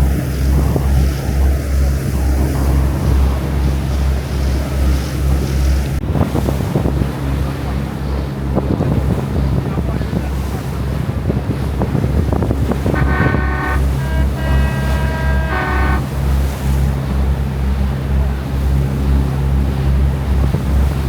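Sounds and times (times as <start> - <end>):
ferry engines droning: 0.0 - 6.0, 7.0 - 21.0
wind buffeting microphone: 0.0 - 16.4
sea rushing against hull: 0.0 - 21.0
held tones: 12.9 - 16.2.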